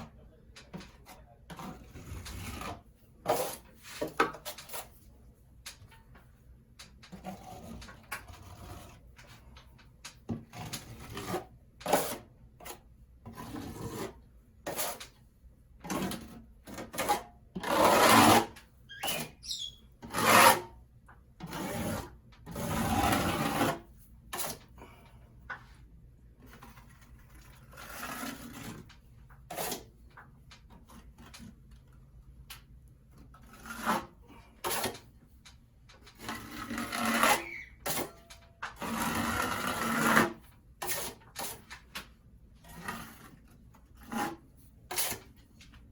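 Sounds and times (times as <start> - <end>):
hand tool rasping on ceiling: 0.9 - 4.9, 7.1 - 9.4, 10.4 - 15.2, 15.8 - 20.8, 21.4 - 24.7, 26.8 - 28.9, 33.4 - 35.2, 36.1 - 41.8, 42.6 - 45.4.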